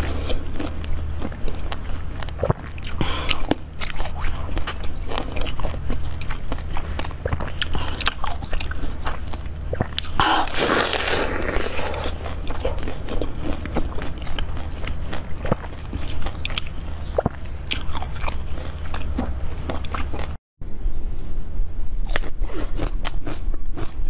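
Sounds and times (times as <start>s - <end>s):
person chewing food: 0.0s - 20.4s, 22.0s - 24.0s
low hum: 0.0s - 24.0s
mouth clicks and smacks: 1.3s - 10.6s.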